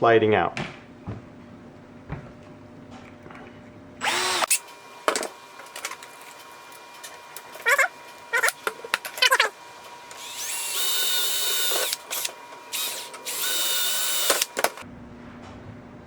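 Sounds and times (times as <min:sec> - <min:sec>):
electric drill whining: 0:04.0 - 0:14.8
short squeaky clicks: 0:07.0 - 0:09.5.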